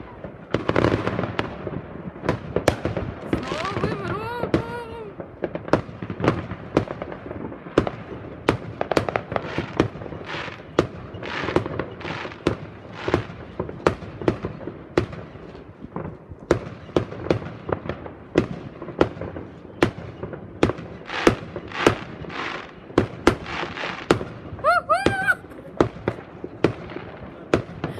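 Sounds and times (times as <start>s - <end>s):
fireworks bangs: 0.0s - 27.9s
fireworks crackling: 0.0s - 27.9s.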